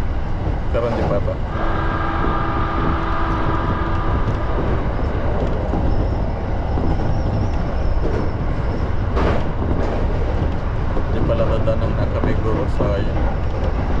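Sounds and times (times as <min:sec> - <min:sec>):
electric train whine: 0:00.0 - 0:14.0
train wheels rumbling on rail: 0:00.0 - 0:14.0.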